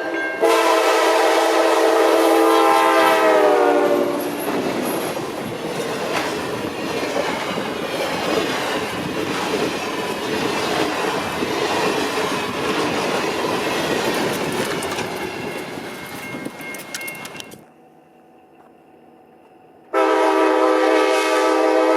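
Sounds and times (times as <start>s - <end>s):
train wheels clacking on rails: 3.2s - 17.6s.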